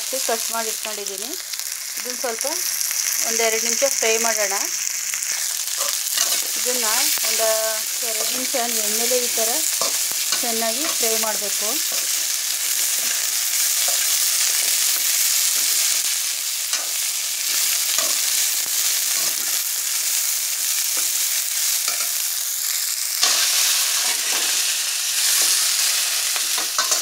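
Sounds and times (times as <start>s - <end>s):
okra sizzling in hot oil: 0.0s - 27.0s
metal ladle scraping pan: 5.4s - 6.5s.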